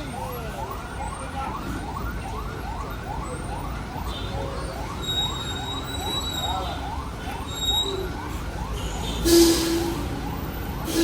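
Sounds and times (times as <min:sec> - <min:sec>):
emergency siren yelping: 0:00.0 - 0:11.0.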